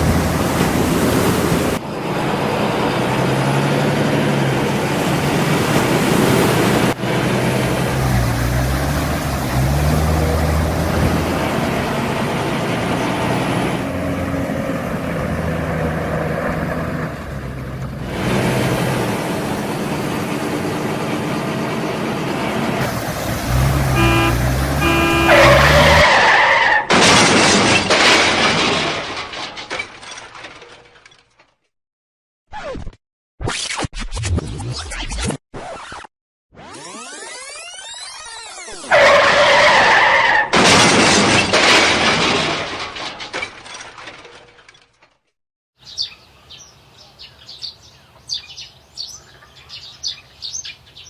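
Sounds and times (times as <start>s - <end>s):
vehicle engine running: 6.9s - 26.0s
short beeps: 24.0s - 25.5s.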